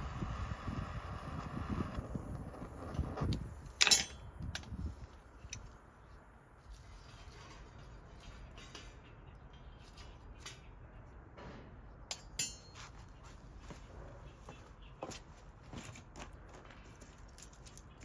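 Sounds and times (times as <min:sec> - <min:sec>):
small metal pieces clinking: 0:03.8 - 0:04.2.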